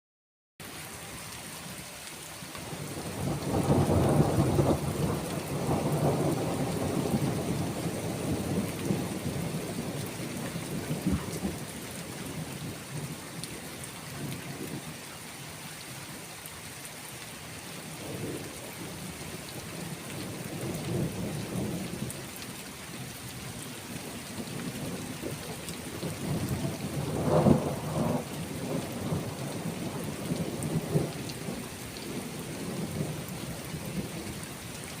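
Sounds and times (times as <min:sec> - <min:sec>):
steady rain: 0:00.6 - 0:35.0
rolling thunder: 0:02.8 - 0:13.2, 0:24.6 - 0:34.3.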